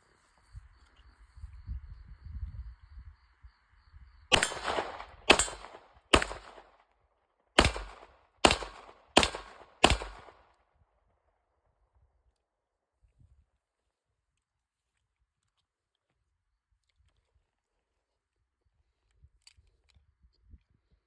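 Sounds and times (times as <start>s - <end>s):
pistol shots: 4.3s - 6.8s, 7.6s - 10.5s.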